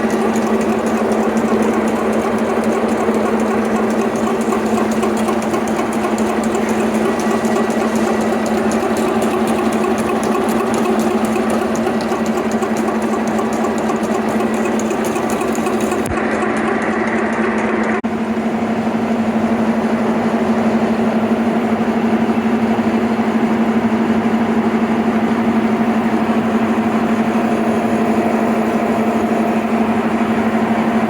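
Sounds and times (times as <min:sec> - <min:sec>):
fast even cutter rattle: 0:00.0 - 0:18.0
milling machine cutting metal: 0:00.0 - 0:18.0.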